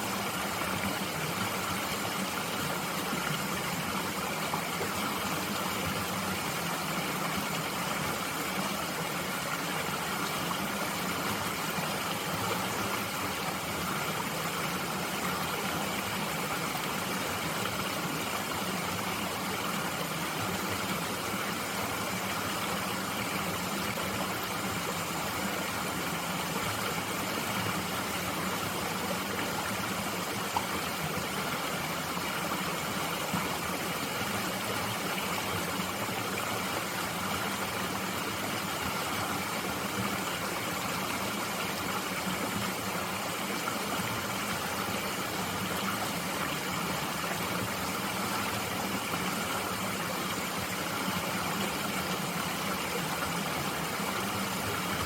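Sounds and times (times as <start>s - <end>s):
stream flowing over rocks: 0.0s - 55.0s.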